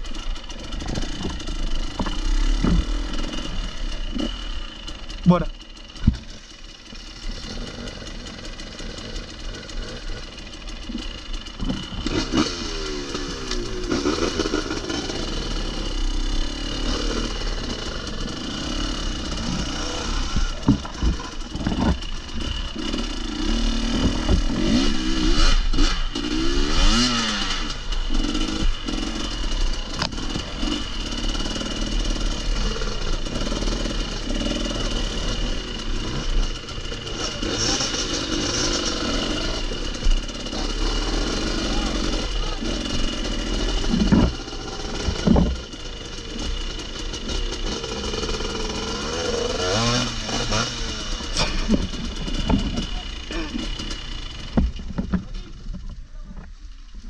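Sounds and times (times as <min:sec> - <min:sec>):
motorcycle engine revving: 0:00.0 - 0:56.4
sharp knocks and clatter: 0:00.5 - 0:03.5, 0:05.9 - 0:06.5, 0:10.8 - 0:12.5, 0:19.0 - 0:25.9, 0:43.8 - 0:47.8, 0:49.1 - 0:53.1, 0:53.8 - 0:56.6.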